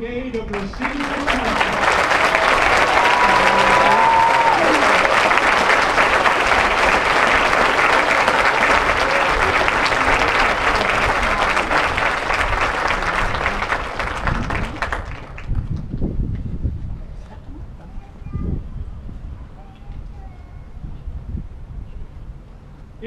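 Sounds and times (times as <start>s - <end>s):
crowd applauding: 0.4s - 15.9s.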